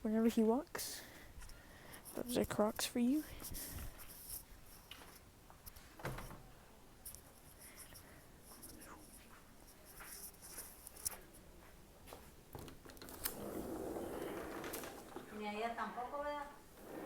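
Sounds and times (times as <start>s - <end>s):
rustling: 12.9s - 15.8s, 16.7s - 17.0s.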